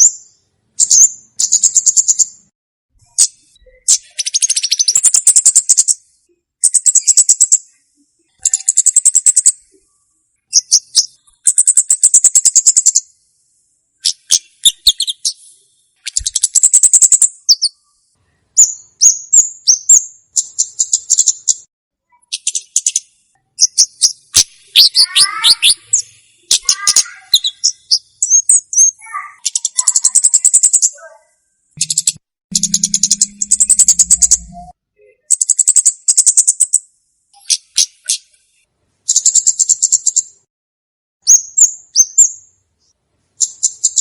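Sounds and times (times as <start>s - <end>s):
sharp bird chirps: 0.0s - 13.2s, 14.0s - 38.4s, 39.1s - 40.3s, 41.2s - 44.0s
bird trilling: 14.0s - 15.4s, 23.6s - 31.2s, 31.8s - 34.7s.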